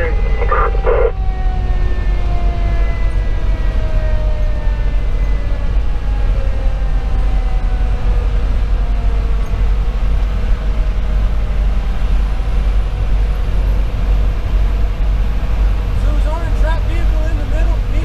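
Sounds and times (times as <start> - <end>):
faint siren winding down: 0.0 - 9.5
low diesel engine drone: 0.0 - 18.0.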